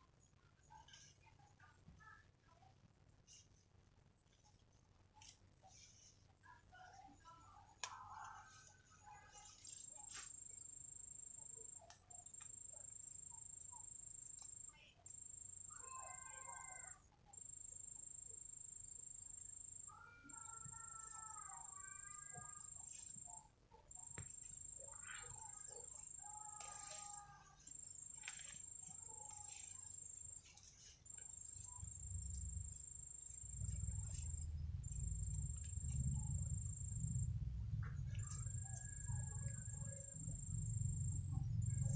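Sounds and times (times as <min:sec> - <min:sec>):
insect buzzing trill: 0:09.4 - 0:37.4.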